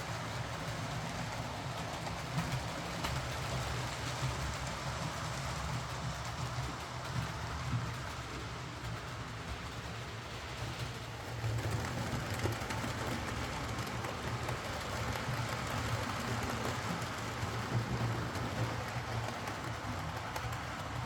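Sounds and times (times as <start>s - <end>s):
model train motor hum: 0.0s - 21.0s
wheels rolling over rails: 0.0s - 21.0s.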